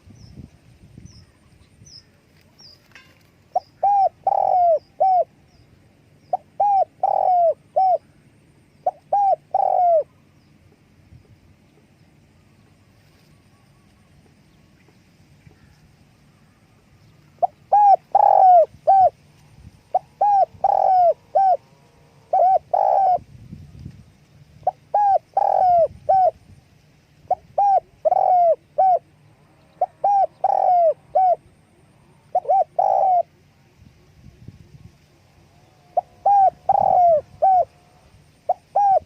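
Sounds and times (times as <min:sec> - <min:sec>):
dove cooing: 0:03.5 - 0:05.4, 0:06.3 - 0:10.3, 0:17.3 - 0:23.2, 0:24.6 - 0:26.4, 0:27.2 - 0:34.1, 0:35.5 - 0:39.0.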